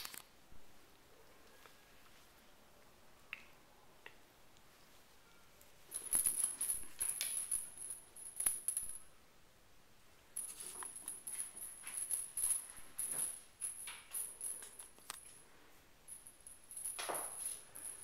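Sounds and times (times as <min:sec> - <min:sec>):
jingling toy rattling: 0:05.9 - 0:09.1, 0:10.4 - 0:15.0, 0:16.1 - 0:18.0.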